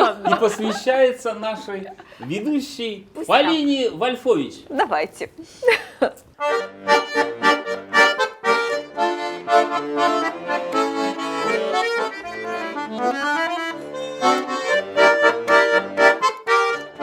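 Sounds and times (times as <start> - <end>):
button accordion playing chords: 6.4 - 17.0.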